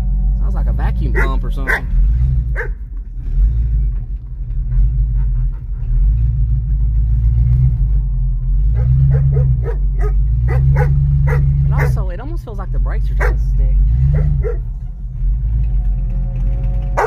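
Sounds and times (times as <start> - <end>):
car engine running rough: 0.0 - 17.0
dog barking: 1.1 - 2.8, 8.8 - 12.0, 13.2 - 13.4, 14.0 - 14.7.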